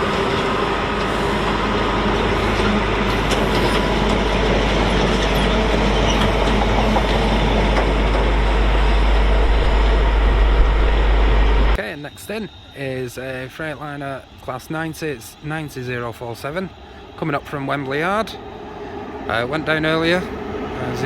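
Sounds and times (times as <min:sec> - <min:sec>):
wheels clicking over rail joints: 0:00.0 - 0:08.7
freight train rumbling past: 0:00.0 - 0:21.0.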